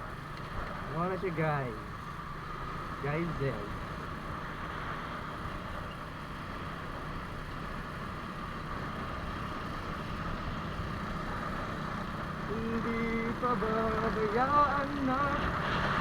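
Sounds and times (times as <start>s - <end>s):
motorcycle engine: 6.4s - 16.0s.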